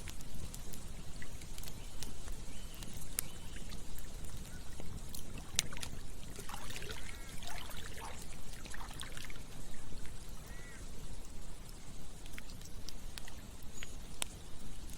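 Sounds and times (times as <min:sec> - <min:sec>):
campfire crackling and popping: 0:00.0 - 0:14.9
stream gurgles: 0:00.4 - 0:11.3
running water rushing: 0:04.3 - 0:10.6.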